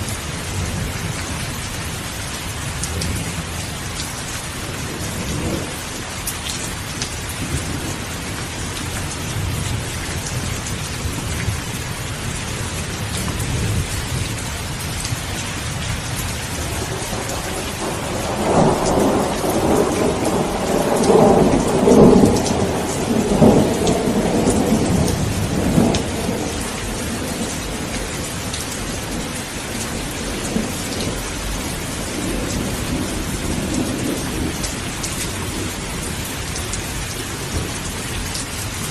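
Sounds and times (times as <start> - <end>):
heavy rain: 0.0 - 38.9
rolling thunder: 7.4 - 38.0.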